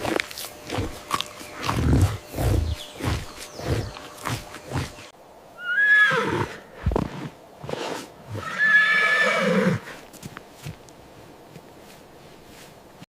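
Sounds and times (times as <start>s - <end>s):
horse whinnying: 5.6s - 6.6s, 8.3s - 9.9s.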